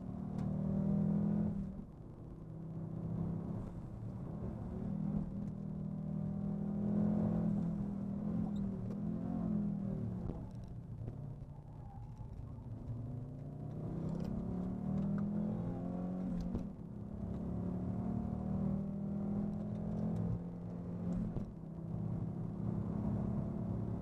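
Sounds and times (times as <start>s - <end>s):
car engine accelerating hard: 13.4s - 21.4s.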